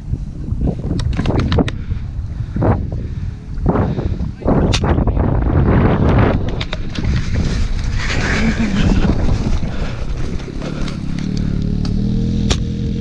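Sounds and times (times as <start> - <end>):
atv engine running: 6.4 - 13.0.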